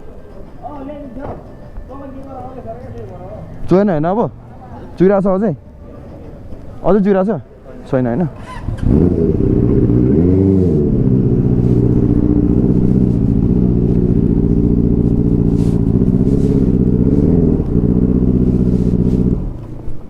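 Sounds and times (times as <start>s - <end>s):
motorcycle engine idling: 8.3s - 20.0s.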